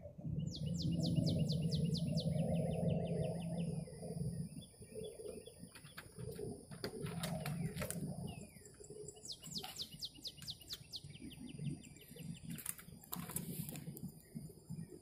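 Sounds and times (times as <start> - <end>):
bird cooing: 3.3 - 10.0
falling bird chirps: 4.6 - 14.5.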